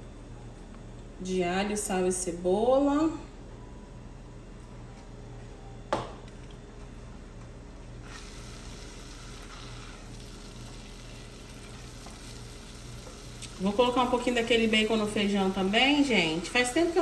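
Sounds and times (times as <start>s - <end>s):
low steady hum: 0.0s - 17.0s
seasoning sizzling in hot oil: 8.0s - 17.0s.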